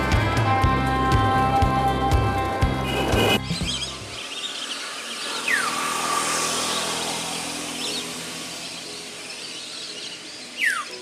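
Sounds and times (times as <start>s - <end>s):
open-air ambience hiss: 3.4s - 11.0s
faint bird chirps: 7.8s - 11.0s.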